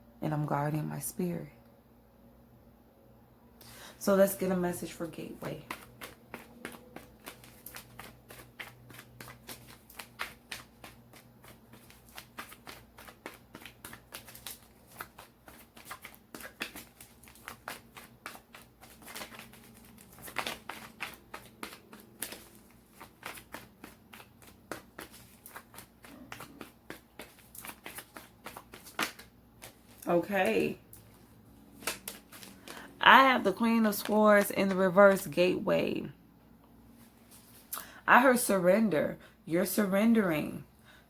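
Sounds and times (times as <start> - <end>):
cards being shuffled by hand: 4.3 - 35.4.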